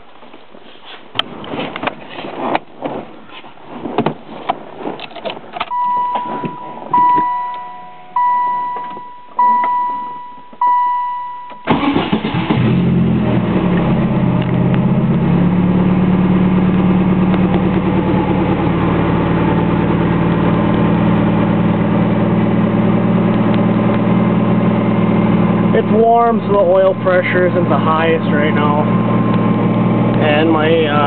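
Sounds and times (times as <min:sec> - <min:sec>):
car engine starting and idling: 0:05.0 - 0:31.0
car warning chime: 0:05.7 - 0:12.2.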